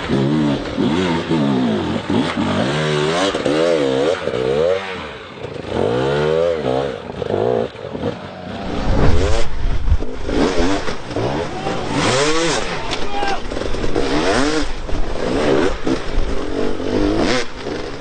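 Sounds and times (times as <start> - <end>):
motorcycle engines revving: 0.0 - 18.0
low rumble: 8.6 - 12.5.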